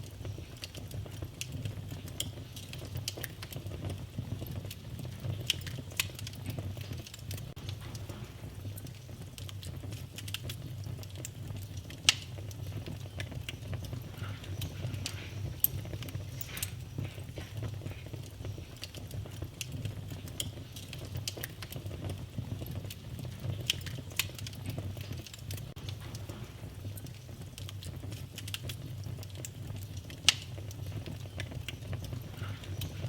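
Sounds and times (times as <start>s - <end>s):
wood fire crackling and popping: 0.0s - 33.0s.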